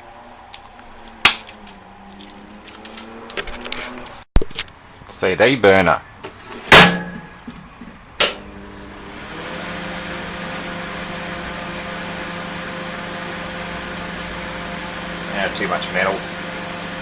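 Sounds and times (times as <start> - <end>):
microwave oven humming: 8.3 - 17.0.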